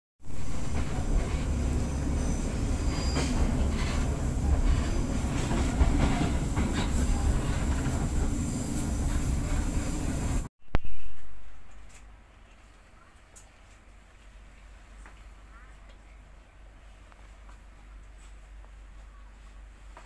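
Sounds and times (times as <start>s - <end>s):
train wheels rumbling on track: 0.2s - 10.5s
high wheel squeal: 0.6s - 10.2s.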